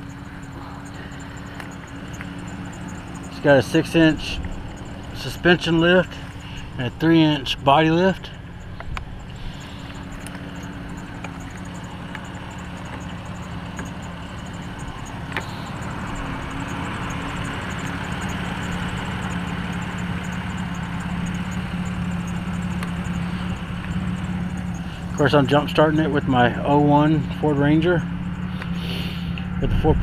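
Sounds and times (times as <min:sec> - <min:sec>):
truck engine idling: 0:00.0 - 0:30.0.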